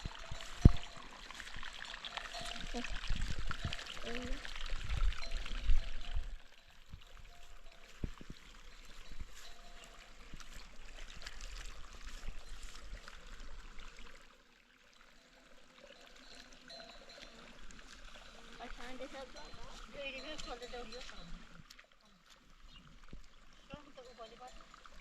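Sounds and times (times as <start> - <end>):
water pouring and trickling: 0.0 - 25.0.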